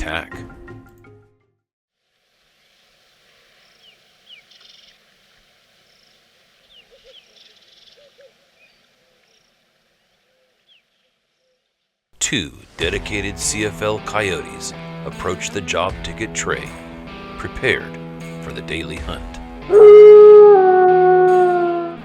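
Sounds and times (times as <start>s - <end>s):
steady hiss: 2.0s - 10.8s
short falling bird chirps: 3.6s - 5.1s
low paired calls: 19.7s - 22.0s.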